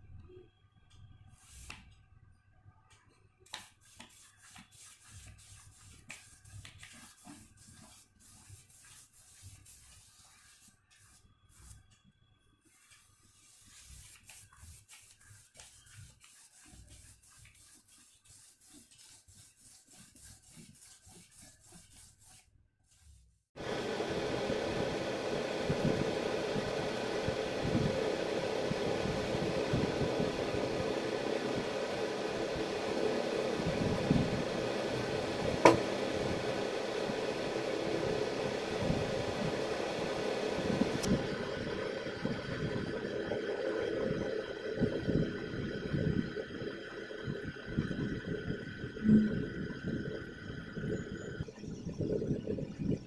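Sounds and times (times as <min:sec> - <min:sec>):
paintbrush rubbing on paper: 0:03.6 - 0:11.9, 0:12.7 - 0:23.3.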